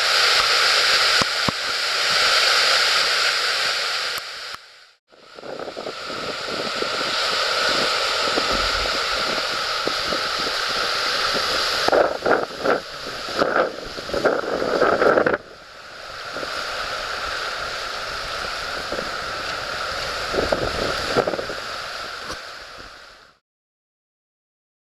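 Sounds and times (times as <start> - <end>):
water rushing through weir: 0.0 - 23.4
wind buffeting microphone: 5.2 - 23.1.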